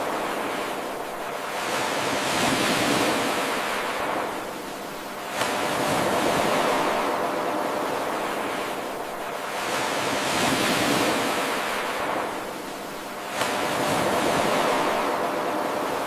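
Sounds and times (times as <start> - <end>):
ocean waves breaking on shore: 0.0 - 16.0.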